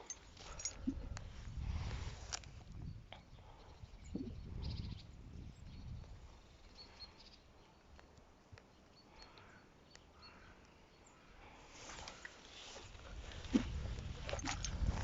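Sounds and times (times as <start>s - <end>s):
faint bird chirps: 2.8s - 11.4s.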